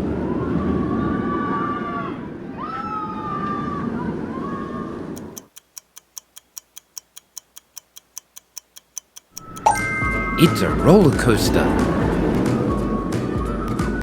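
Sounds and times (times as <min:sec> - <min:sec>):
countdown timer ticking: 0:05.2 - 0:12.8
high wavering cries: 0:09.4 - 0:13.3
roller coaster rushing rumble: 0:09.9 - 0:14.0.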